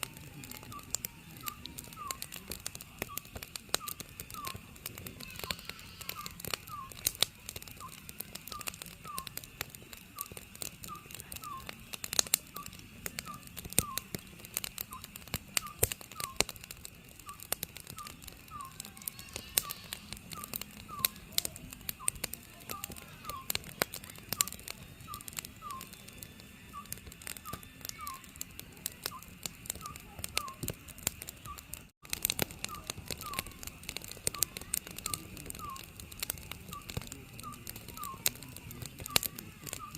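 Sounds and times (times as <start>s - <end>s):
crackling wood fire: 0.0s - 39.9s
owl hooting: 0.7s - 2.4s, 5.2s - 7.1s, 7.8s - 9.3s, 18.0s - 21.2s, 29.1s - 30.6s, 35.4s - 36.0s.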